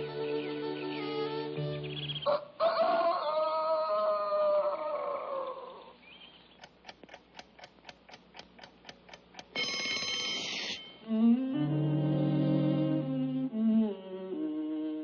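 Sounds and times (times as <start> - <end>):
alarm clock ticking: 6.6 - 11.0
alarm clock bell ringing: 9.6 - 11.0.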